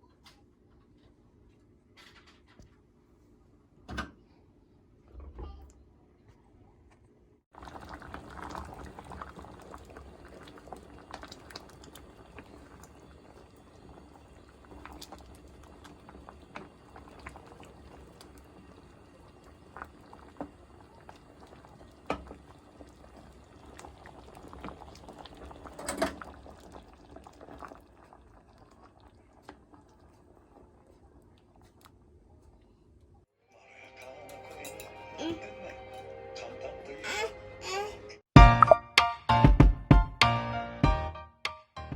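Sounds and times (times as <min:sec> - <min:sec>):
pot of curry bubbling: 0:07.5 - 0:33.1.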